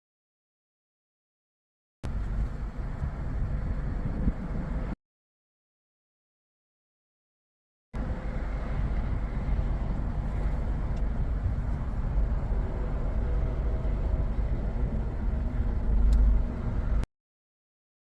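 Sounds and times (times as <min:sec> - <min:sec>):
vehicle road and engine rumble: 0:02.0 - 0:05.0, 0:08.0 - 0:17.1.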